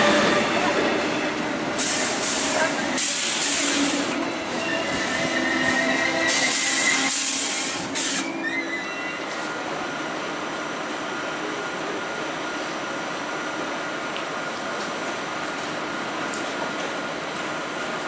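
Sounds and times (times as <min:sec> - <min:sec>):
train moving with whining hiss: 0:00.0 - 0:14.1
train equipment hissing: 0:01.7 - 0:09.0.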